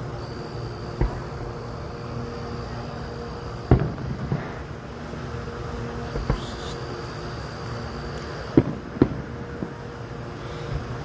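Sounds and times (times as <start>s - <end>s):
distant fireworks bursting: 0.0s - 11.0s
low hum: 0.0s - 11.0s.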